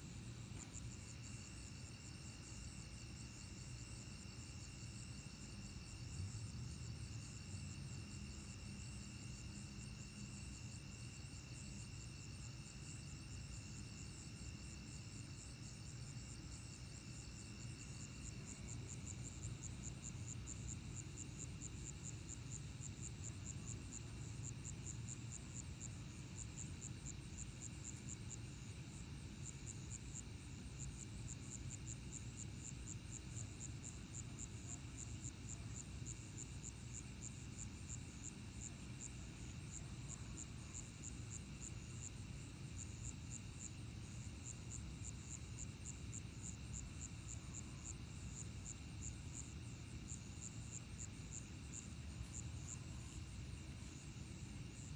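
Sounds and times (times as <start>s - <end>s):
high pulsing insect chirp: 0.0s - 54.9s
insects trilling: 39.3s - 54.9s.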